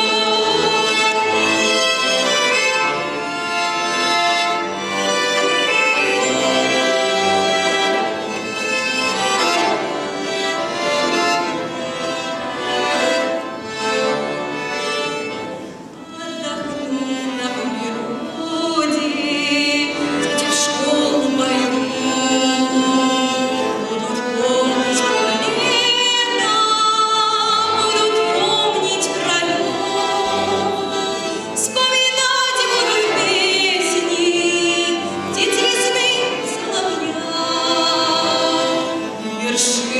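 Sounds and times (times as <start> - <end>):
instrumental accompaniment: 0.0 - 39.9
girl singing with vibrato: 16.2 - 39.9.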